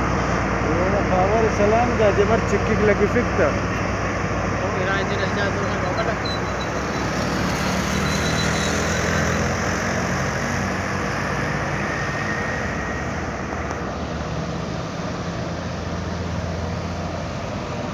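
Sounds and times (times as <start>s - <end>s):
diesel truck engine droning: 0.0s - 17.9s.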